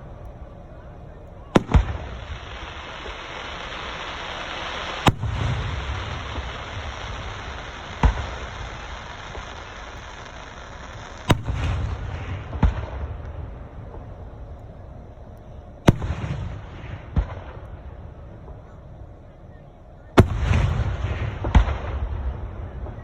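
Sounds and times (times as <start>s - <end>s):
fireworks bangs: 0.0s - 23.0s
steady background hiss: 0.0s - 23.0s.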